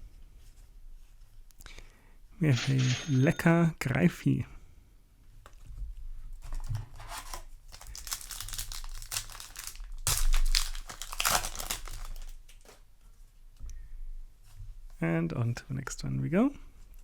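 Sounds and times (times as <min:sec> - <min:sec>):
foil wrapper tearing and crinkling: 0:06.6 - 0:12.8.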